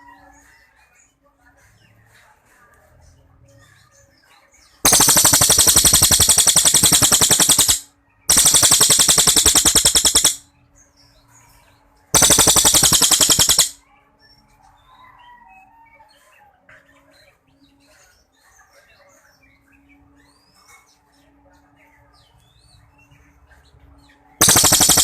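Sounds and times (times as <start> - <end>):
faint bird chirps: 4.9 - 10.4, 12.2 - 13.8, 24.4 - 25.0
songbird rattling trills: 4.9 - 10.4, 12.2 - 13.8, 24.4 - 25.0.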